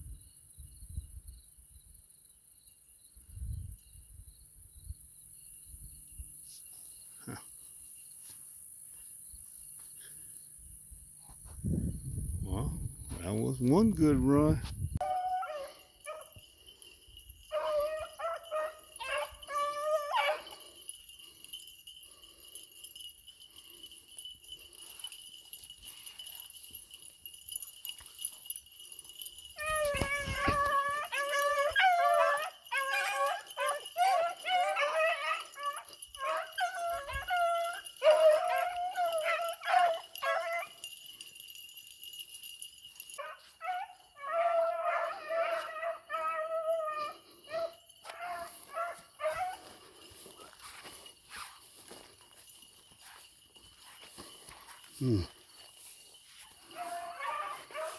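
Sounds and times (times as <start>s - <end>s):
pack of hounds baying: 15.0s - 21.6s, 27.9s - 41.4s, 43.0s - 52.2s, 55.3s - 57.9s.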